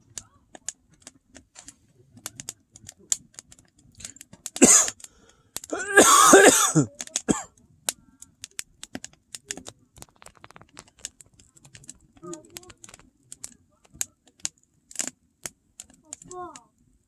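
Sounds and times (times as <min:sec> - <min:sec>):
wood fire crackling: 0:00.0 - 0:17.0
person clearing throat: 0:04.6 - 0:04.9, 0:05.7 - 0:07.5
person coughing: 0:04.6 - 0:04.9, 0:05.7 - 0:07.5.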